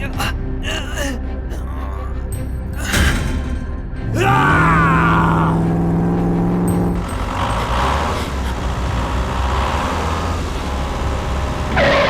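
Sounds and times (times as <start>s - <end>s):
vehicle engine running: 4.6s - 12.0s.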